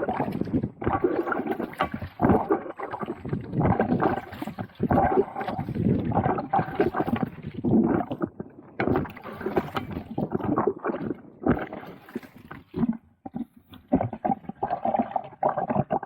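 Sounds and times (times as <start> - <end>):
water gurgling: 0.0 - 16.0
paddle splashing in water: 8.7 - 10.5.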